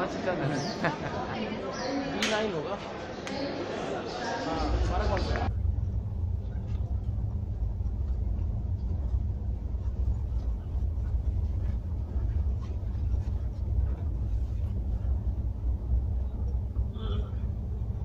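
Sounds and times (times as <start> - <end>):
train coach rumble: 4.6 - 18.0.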